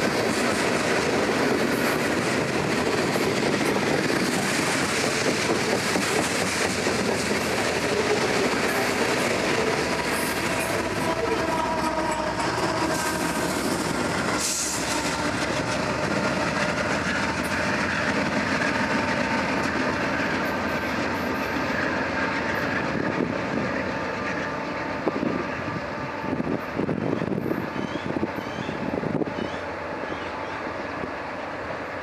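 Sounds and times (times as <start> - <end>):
train cars rumbling on rails: 0.0 - 32.0.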